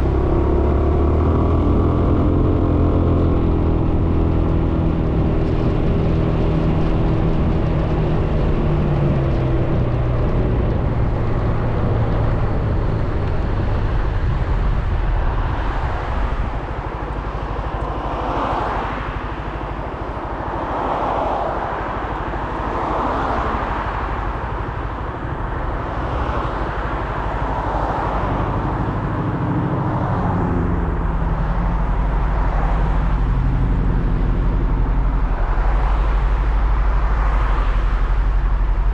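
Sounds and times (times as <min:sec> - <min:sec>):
road noise: 0:00.0 - 0:38.9
scooter engine: 0:00.0 - 0:38.9.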